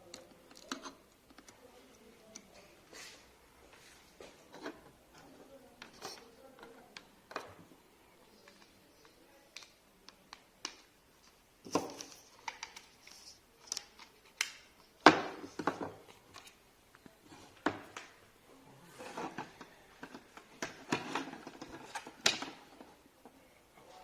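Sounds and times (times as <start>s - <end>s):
hard objects clicking and knocking: 13.6s - 18.2s, 19.1s - 23.4s.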